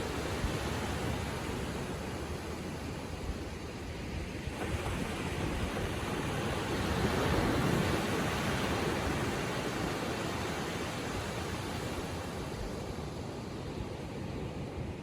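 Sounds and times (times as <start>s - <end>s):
gentle ocean waves on shore: 0.0s - 15.0s.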